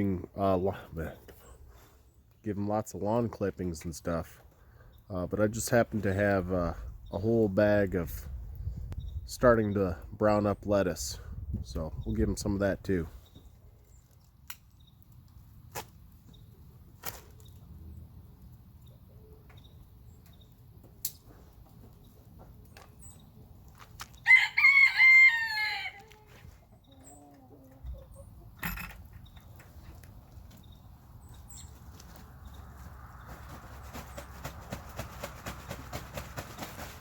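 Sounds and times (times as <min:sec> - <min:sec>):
rooster crowing: 0:24.3 - 0:26.1.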